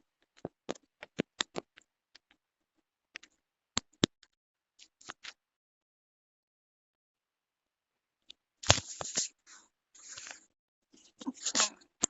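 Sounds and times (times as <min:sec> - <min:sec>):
keyboard and mouse clicks: 0:00.3 - 0:02.4.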